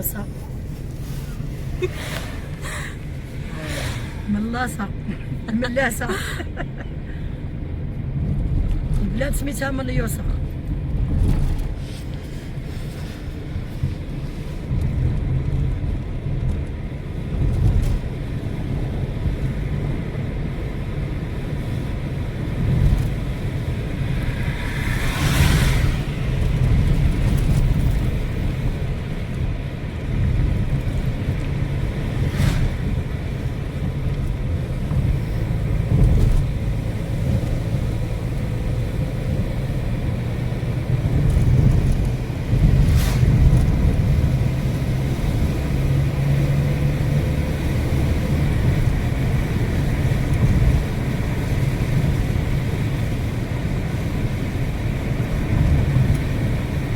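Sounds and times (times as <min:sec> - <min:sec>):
car driving rumble from inside: 0:00.0 - 0:56.9
brief rushing whoosh: 0:00.9 - 0:04.4, 0:22.8 - 0:28.4, 0:31.9 - 0:33.7, 0:42.5 - 0:44.1.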